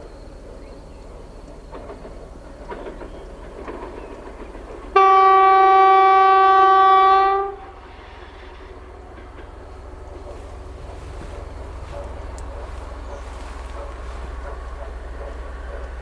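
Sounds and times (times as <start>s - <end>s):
running train rumble: 0.0s - 16.0s
locomotive horn blast: 5.0s - 8.8s.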